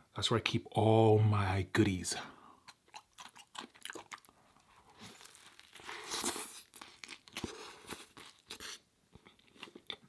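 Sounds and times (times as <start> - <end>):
packaging crinkling: 4.9 - 8.5.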